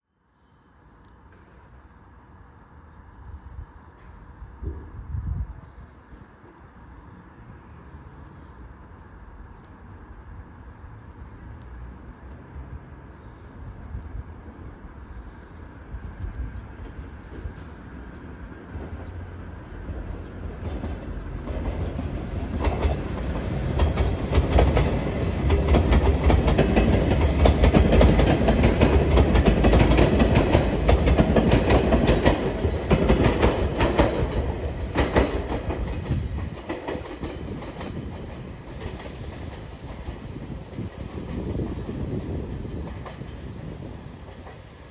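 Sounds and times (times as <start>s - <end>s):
train wheels clacking: 19.8s - 43.3s.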